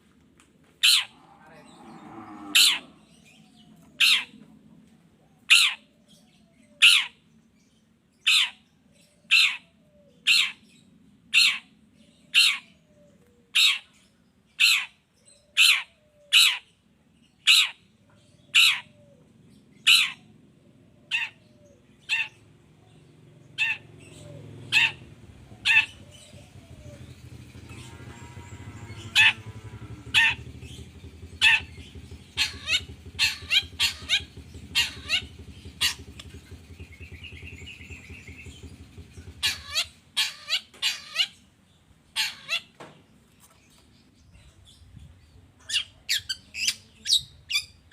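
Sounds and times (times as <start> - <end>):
bird giving sharp calls: 0.8 - 3.1, 4.0 - 4.4, 5.4 - 5.9, 18.5 - 19.2, 19.8 - 20.3, 20.9 - 41.4, 42.1 - 42.8.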